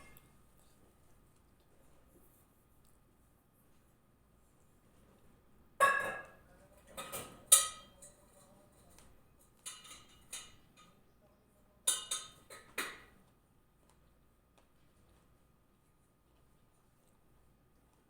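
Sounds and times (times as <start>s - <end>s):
dishes and cutlery clinking: 0.0s - 0.3s, 5.8s - 11.0s, 11.8s - 13.1s.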